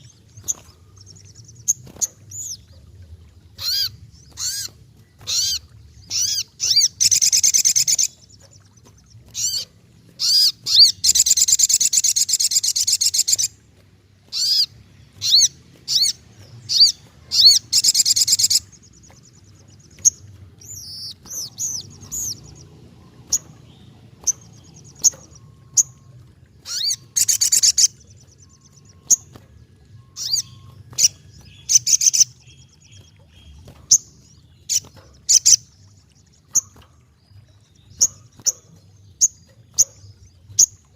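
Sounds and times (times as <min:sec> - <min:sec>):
bird chip notes and twitters: 0:00.0 - 0:13.6, 0:14.3 - 0:40.9
sunbird buzzy trills: 0:00.0 - 0:40.9.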